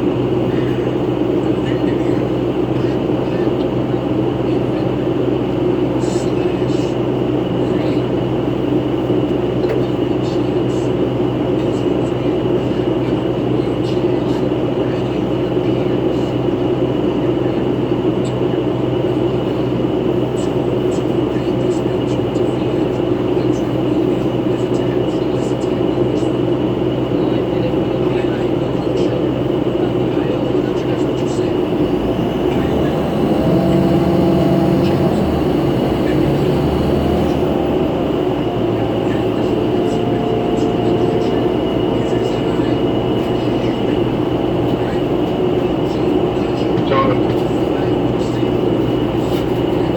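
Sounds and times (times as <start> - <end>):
bus mechanical drone: 0.0 - 49.9
road rumble: 0.0 - 49.9
high whine: 33.3 - 49.2.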